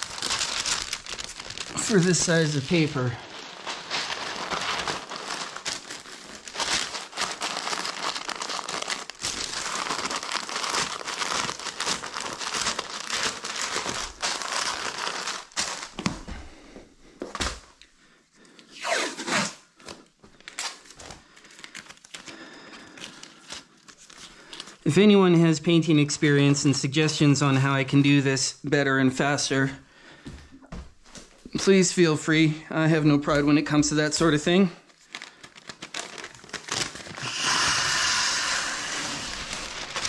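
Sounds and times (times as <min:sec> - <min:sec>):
paper crinkling and rustling: 0:00.0 - 0:16.3, 0:19.8 - 0:24.9, 0:33.2 - 0:37.3, 0:38.0 - 0:40.0.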